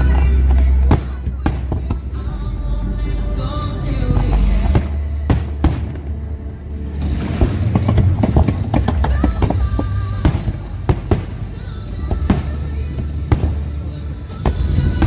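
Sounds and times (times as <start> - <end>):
music with steady bass: 0.0 - 15.0
fireworks bangs and crackles: 7.1 - 15.0.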